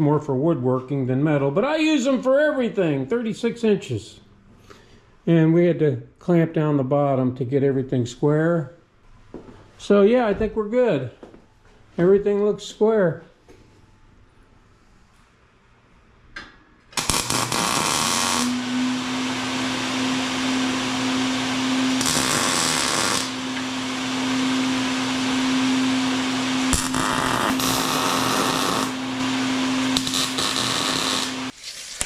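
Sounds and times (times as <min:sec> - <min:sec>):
electric hum: 0:16.9 - 0:31.5
welding arc crackling hiss: 0:17.0 - 0:18.6, 0:21.8 - 0:23.7, 0:26.6 - 0:31.6.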